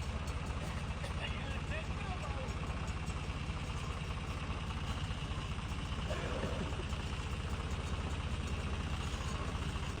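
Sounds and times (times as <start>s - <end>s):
tractor engine running: 2.6s - 10.0s.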